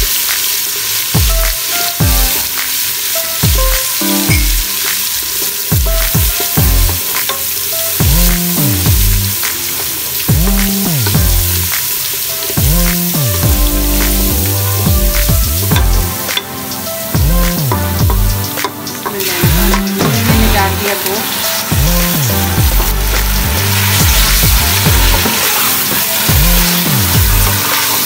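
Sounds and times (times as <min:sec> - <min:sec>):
paste sizzling in hot oil: 0:00.0 - 0:28.0
electronic music with bass drops: 0:05.8 - 0:07.2, 0:08.0 - 0:09.5, 0:10.3 - 0:11.8, 0:12.6 - 0:18.6, 0:21.7 - 0:28.0
wooden spatula stirring: 0:22.4 - 0:28.0.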